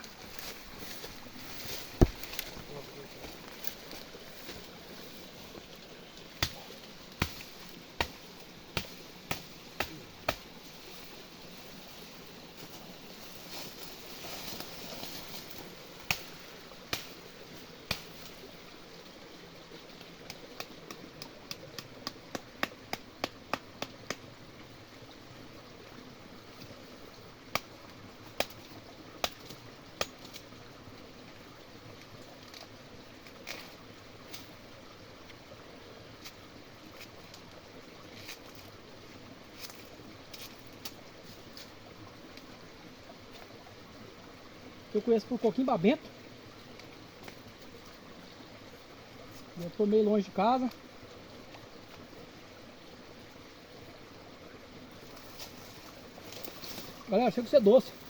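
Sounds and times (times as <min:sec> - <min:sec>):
faint steady hiss: 0:00.0 - 0:58.0
sharp knocks and taps: 0:20.3 - 0:24.2.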